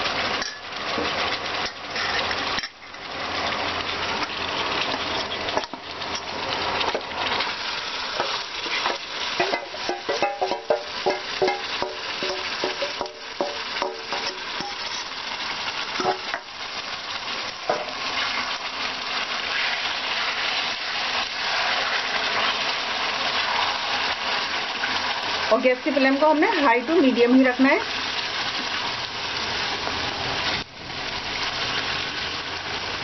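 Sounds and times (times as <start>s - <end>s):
chicken sizzling in hot oil: 0.0s - 33.0s
steel bowl scraping: 1.6s - 3.0s, 8.1s - 15.2s
wooden spatula stirring: 8.2s - 15.2s.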